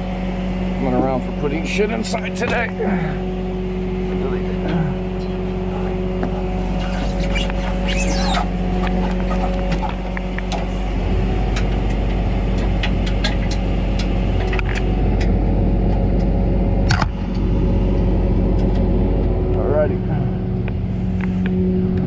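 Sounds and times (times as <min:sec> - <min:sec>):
vehicle engine running: 0:00.0 - 0:22.0
clicks and rattles: 0:11.6 - 0:15.3.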